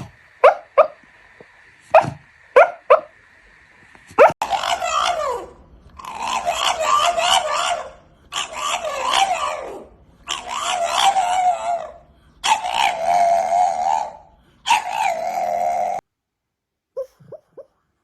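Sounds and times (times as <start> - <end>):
dog howling: 4.2 - 16.0.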